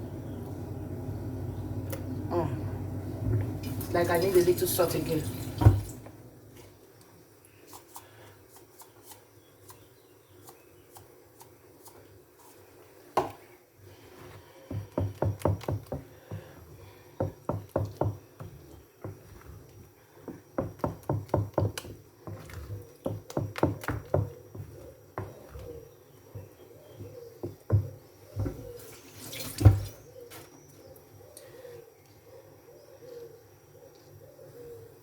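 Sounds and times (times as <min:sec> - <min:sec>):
spoon stirring batter in a bowl: 0:14.0 - 0:28.8.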